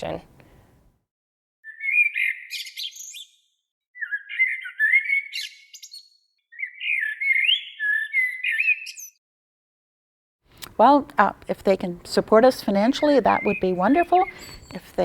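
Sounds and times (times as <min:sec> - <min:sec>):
songbird warbling: 0:01.6 - 0:09.2, 0:13.0 - 0:14.8.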